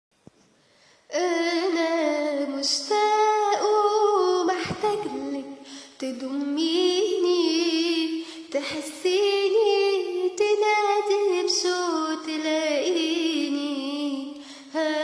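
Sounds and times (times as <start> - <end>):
woman singing with vibrato: 1.1 - 15.0.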